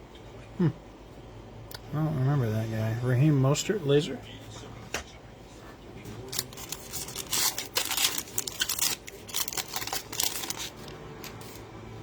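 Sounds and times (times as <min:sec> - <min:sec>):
card packaging rustling: 0:06.1 - 0:11.6.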